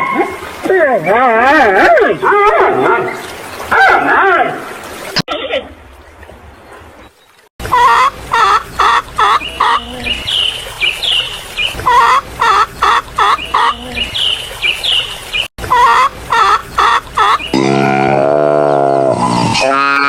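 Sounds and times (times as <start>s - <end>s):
high chirping calls: 7.0s - 17.6s
chickens clucking: 7.6s - 17.6s.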